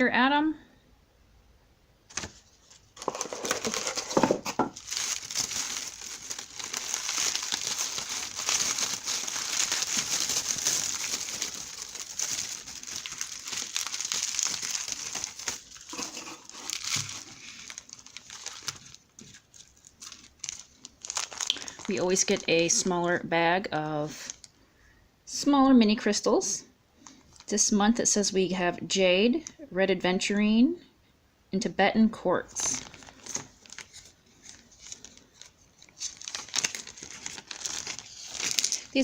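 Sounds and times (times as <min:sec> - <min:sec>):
packaging crinkling and rustling: 0:02.1 - 0:22.9, 0:32.5 - 0:39.0
sharp crackles of wrapping: 0:03.0 - 0:22.9, 0:32.6 - 0:39.0.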